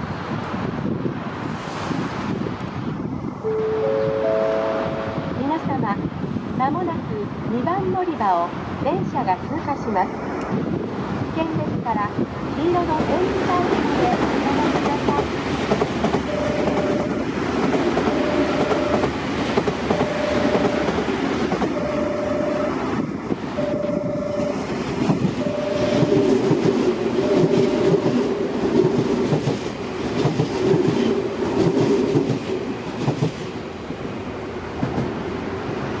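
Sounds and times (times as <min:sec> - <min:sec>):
short warning beep: 0:03.5 - 0:05.3, 0:16.3 - 0:17.2, 0:18.1 - 0:19.1, 0:19.9 - 0:21.0, 0:21.8 - 0:22.8, 0:23.6 - 0:24.6, 0:25.4 - 0:26.2, 0:27.2 - 0:28.1
train wheels clattering: 0:13.0 - 0:22.4, 0:24.4 - 0:33.5.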